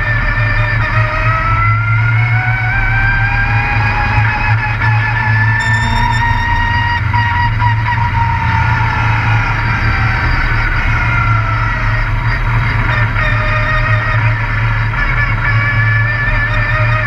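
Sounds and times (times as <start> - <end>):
truck engine running hard: 0.0 - 17.0.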